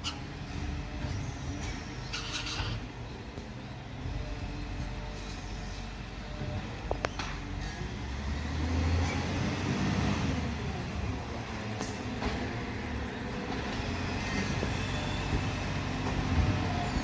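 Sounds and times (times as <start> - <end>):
truck diesel engine rumbling: 0.0 - 17.0
high-pitched squeak: 1.0 - 2.8.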